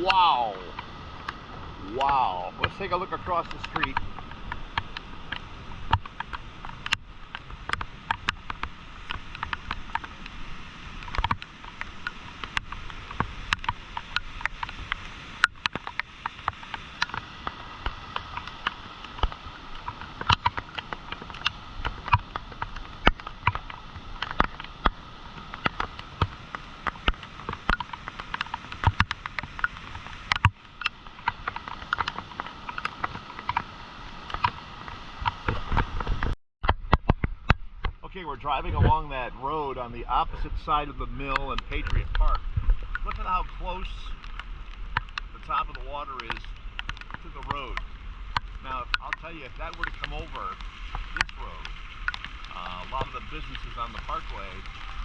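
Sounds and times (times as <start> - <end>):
floodwater rushing: 0.0 - 55.0
water splashes and crackles: 0.0 - 55.0.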